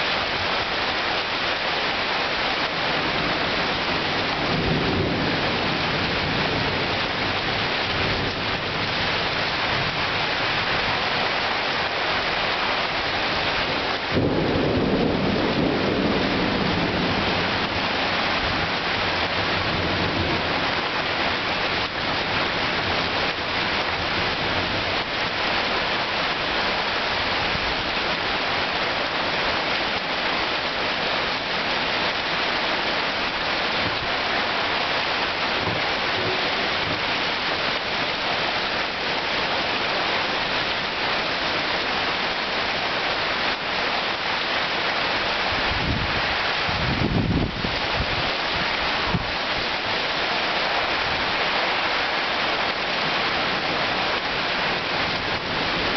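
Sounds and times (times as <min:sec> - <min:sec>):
heavy rain hiss: 0:00.0 - 0:55.9
thunder rumble: 0:13.8 - 0:22.5.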